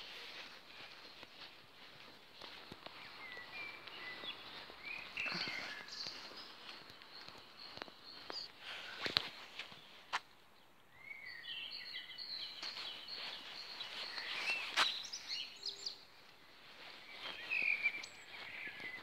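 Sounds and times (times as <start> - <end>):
light outdoor hiss: 0.0 - 19.0
songbirds singing: 0.0 - 19.0.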